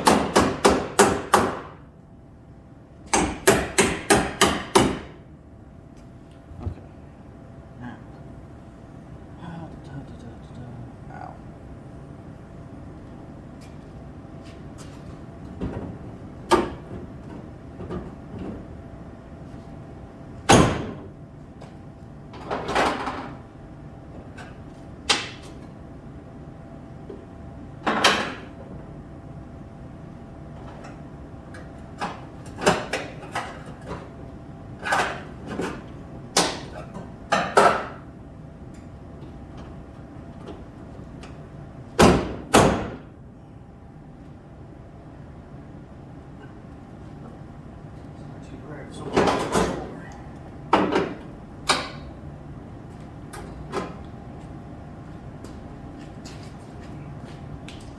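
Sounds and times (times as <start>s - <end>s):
knocks on sheet metal: 0.0s - 1.8s, 3.2s - 5.2s
faint steady hum: 1.4s - 42.2s.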